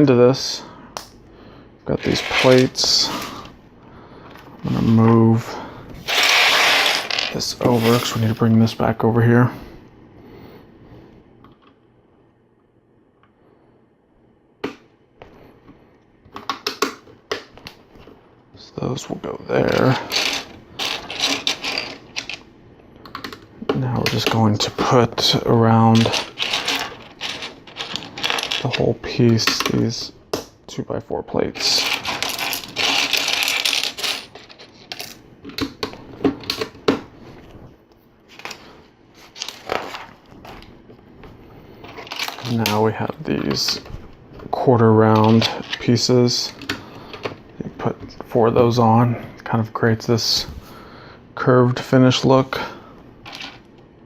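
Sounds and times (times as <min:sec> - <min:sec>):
plastic pieces clicking: 0:26.0 - 0:28.8, 0:31.8 - 0:35.8.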